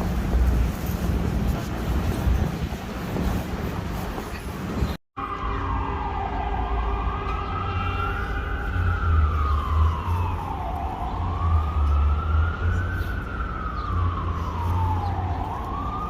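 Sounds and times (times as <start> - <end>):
emergency siren wailing: 5.2 - 16.0.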